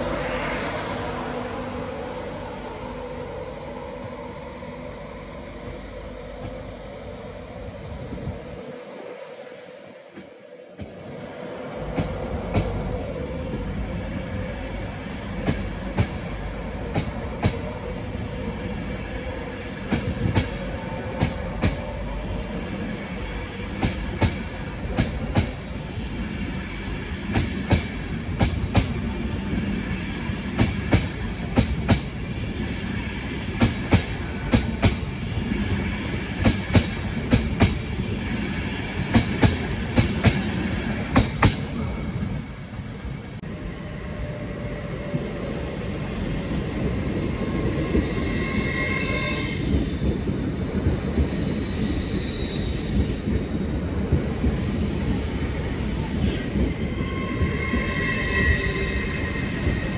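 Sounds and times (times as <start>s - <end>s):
train coaches rumbling on rail: 0.0s - 59.9s.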